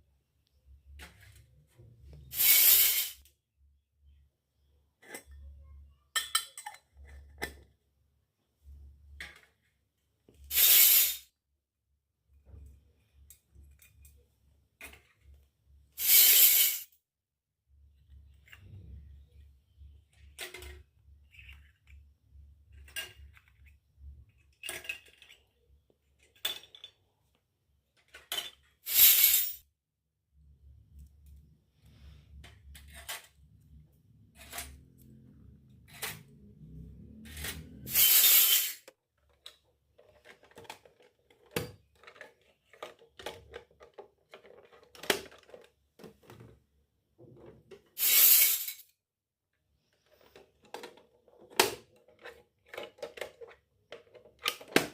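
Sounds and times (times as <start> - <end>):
toy metal pots and plates clinking: 5.0 - 7.6, 26.2 - 27.0, 37.3 - 38.8, 48.0 - 48.8.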